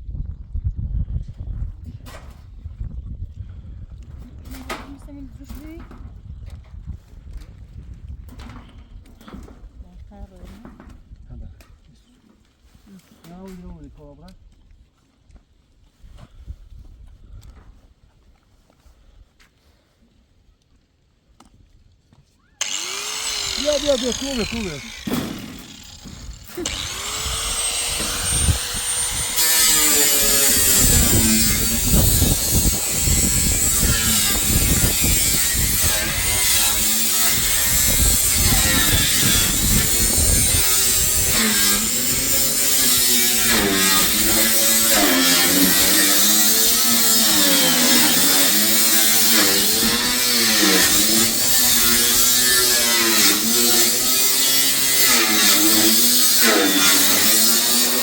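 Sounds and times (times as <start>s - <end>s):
small motor running: 22.6s - 58.0s.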